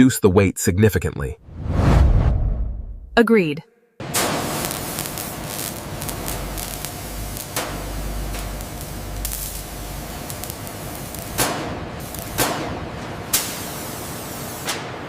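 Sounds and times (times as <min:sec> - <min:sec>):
low rumble: 0:01.4 - 0:03.2
hissing industrial noise: 0:04.0 - 0:15.0.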